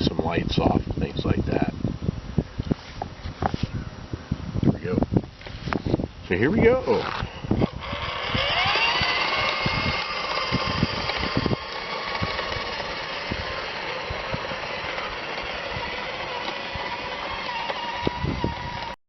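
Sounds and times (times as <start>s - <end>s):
electric motor whine: 5.4s - 19.0s
toy car rattling over ground: 6.4s - 19.0s.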